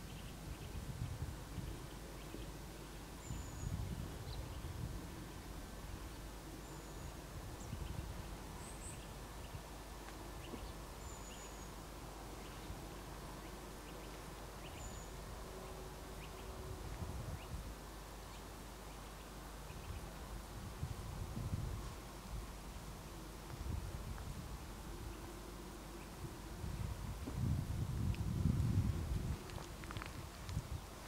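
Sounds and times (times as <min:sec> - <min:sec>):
gusty wind rumble on microphone: 0:00.0 - 0:01.9, 0:03.2 - 0:06.2, 0:07.1 - 0:09.7, 0:16.4 - 0:17.8, 0:19.8 - 0:22.5, 0:23.5 - 0:25.2, 0:26.2 - 0:31.0.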